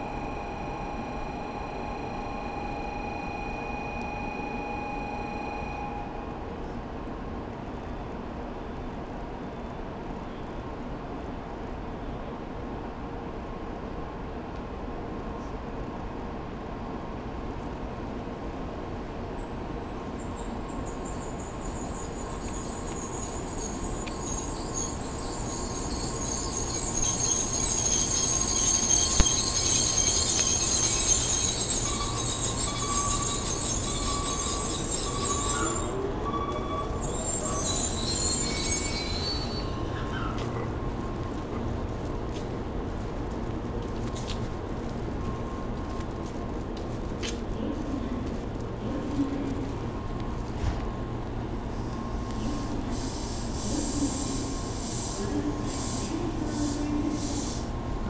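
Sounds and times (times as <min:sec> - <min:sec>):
high-pitched tone: 0:00.0 - 0:06.4, 0:21.8 - 0:41.2
train approaching rumble: 0:00.0 - 0:58.0.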